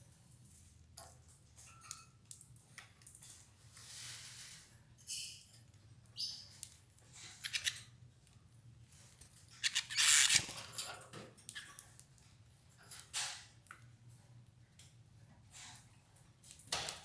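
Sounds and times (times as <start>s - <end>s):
birds pecking and tearing leaves: 7.2s - 7.8s, 9.6s - 12.0s.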